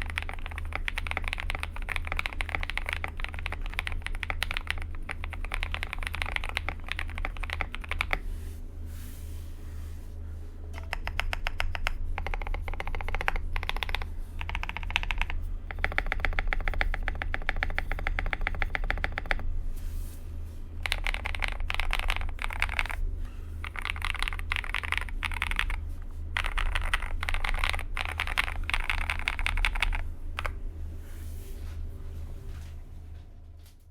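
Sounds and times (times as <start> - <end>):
fast mechanical keyboard typing: 0.0 - 8.2, 10.8 - 19.4, 20.8 - 23.0, 23.6 - 30.6
steady low hum: 0.0 - 33.9.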